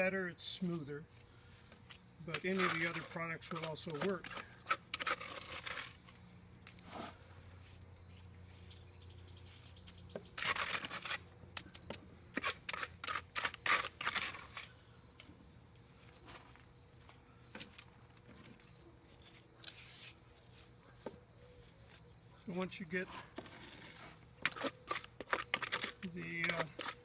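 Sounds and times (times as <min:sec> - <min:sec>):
hand tool scraping wet stucco: 0:02.2 - 0:06.1, 0:09.7 - 0:14.8, 0:21.8 - 0:27.0.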